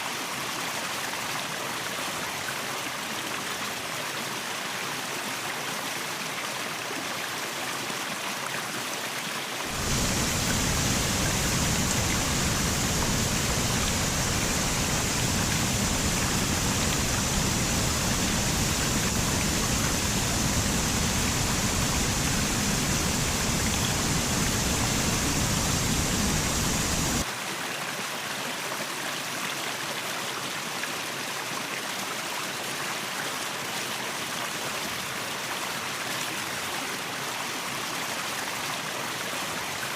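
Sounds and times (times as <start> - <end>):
waterfall rushing: 9.7 - 27.3.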